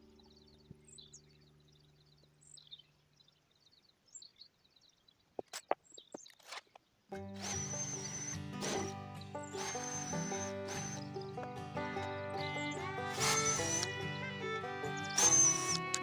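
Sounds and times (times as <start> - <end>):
small birds chirping: 0.0 - 16.0
background music: 7.2 - 16.0.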